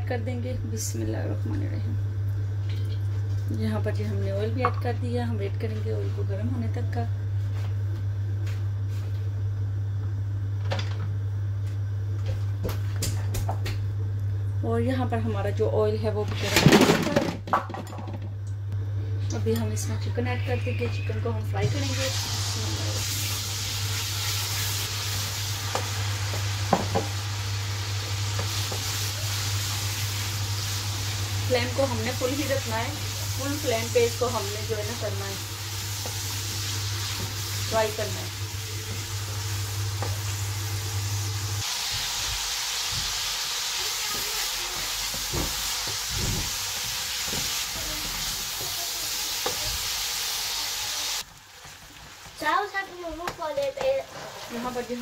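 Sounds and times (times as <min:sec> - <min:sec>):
chicken sizzling in hot oil: 0:21.6 - 0:55.0
wooden spatula scraping pan: 0:53.8 - 0:55.0.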